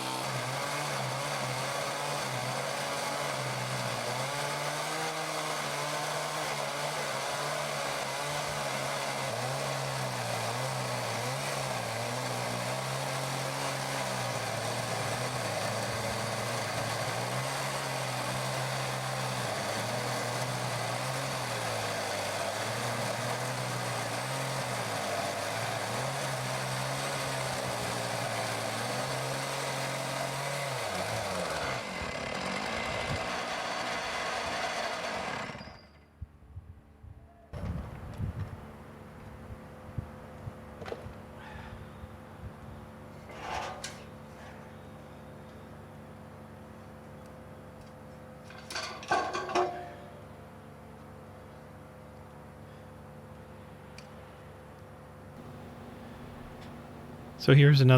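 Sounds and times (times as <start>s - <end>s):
chainsaw cutting log: 0.0s - 35.6s, 55.4s - 57.5s.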